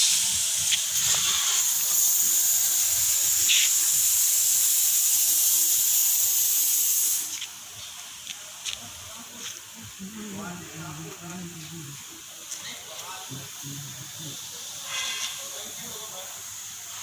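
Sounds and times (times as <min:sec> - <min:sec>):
loud high-pitched hiss: 0:00.0 - 0:17.0.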